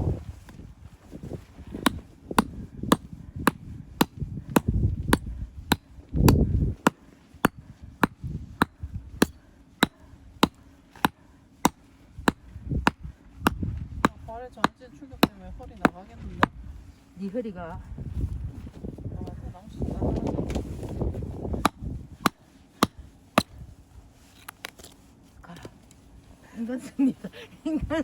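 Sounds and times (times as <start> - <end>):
heavy dull thuds: 1.2 - 11.2, 12.2 - 16.8
axe chopping log: 1.8 - 16.6.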